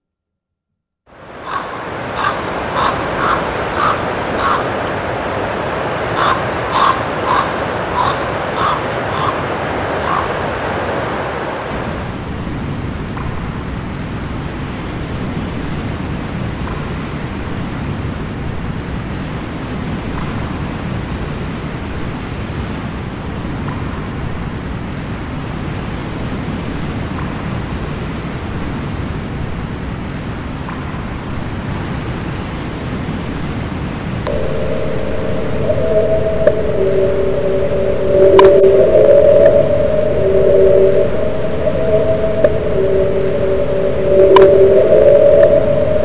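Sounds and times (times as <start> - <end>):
steady low rumbling: 34.2 - 46.0
steady mid-pitched tone: 34.3 - 46.0.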